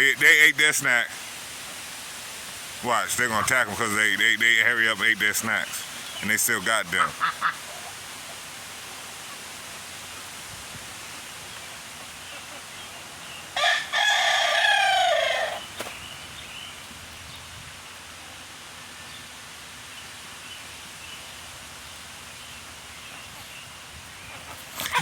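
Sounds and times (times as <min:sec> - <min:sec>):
faint steady hiss: 0:00.0 - 0:25.0
rooster crowing: 0:13.6 - 0:15.7.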